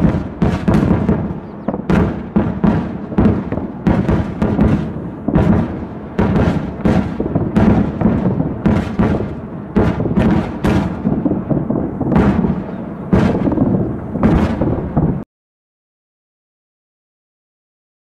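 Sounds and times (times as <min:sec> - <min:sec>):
rocket explosions rumbling: 0:00.0 - 0:15.2.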